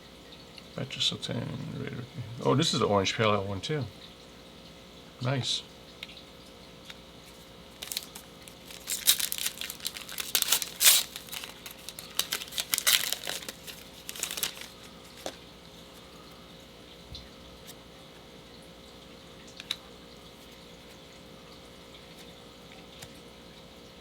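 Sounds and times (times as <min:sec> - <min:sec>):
plastic wrapper tearing and crinkling: 0:07.7 - 0:15.4.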